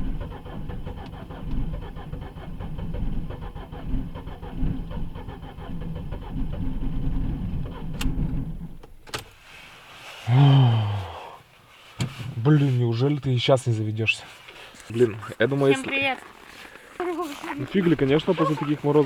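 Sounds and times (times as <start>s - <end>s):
car starter motor cranking: 0.0s - 9.4s, 16.5s - 19.0s
man's voice: 17.5s - 19.0s.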